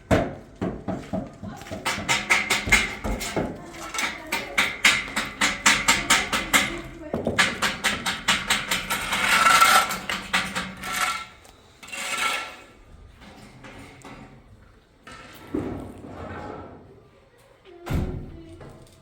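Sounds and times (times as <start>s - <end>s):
scraping: 1.4s - 14.5s.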